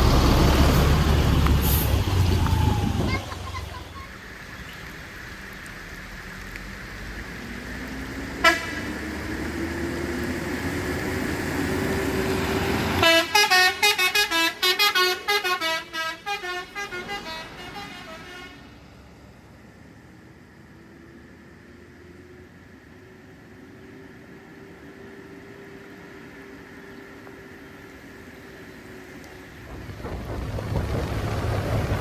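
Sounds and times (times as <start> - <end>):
heavy vehicle engine rising: 0.0 - 4.0, 28.9 - 32.0
short horn toot: 8.4 - 8.8
musical horn playing tune: 8.4 - 8.9, 13.0 - 18.7.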